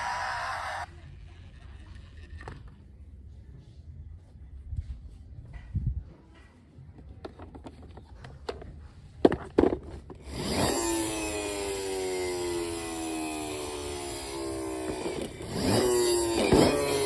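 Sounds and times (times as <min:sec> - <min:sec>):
descending electronic tone: 0:00.0 - 0:00.9
plastic toys clicking and knocking: 0:07.0 - 0:10.2.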